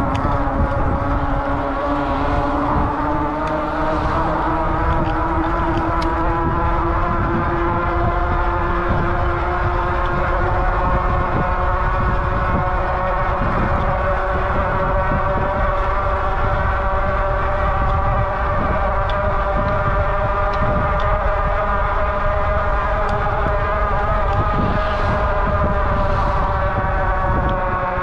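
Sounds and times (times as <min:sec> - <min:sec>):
electric bike motor whine: 0:00.0 - 0:28.0
wind rumble on microphone: 0:00.0 - 0:28.0.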